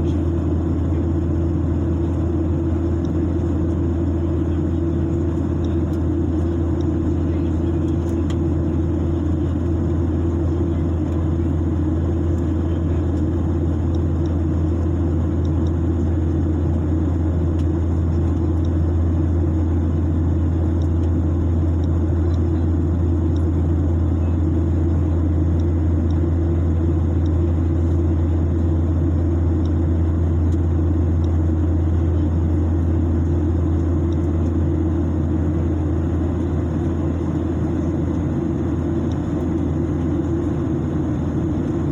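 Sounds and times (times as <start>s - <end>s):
airliner cabin engine rumble: 0.0s - 41.9s.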